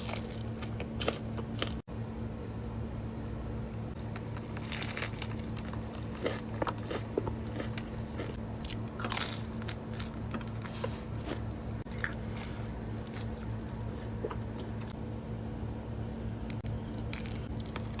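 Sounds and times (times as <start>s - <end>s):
crunchy chewing: 0.0s - 1.8s, 4.0s - 15.0s, 16.6s - 18.0s
steady low hum: 0.0s - 18.0s.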